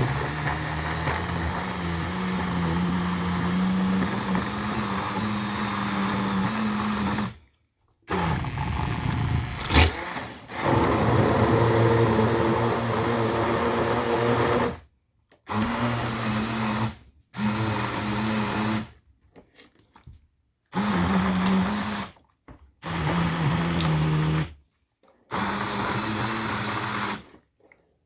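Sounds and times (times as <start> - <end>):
stick blender whirring: 0.0 - 7.4, 8.1 - 14.8, 22.8 - 24.5, 25.3 - 27.4.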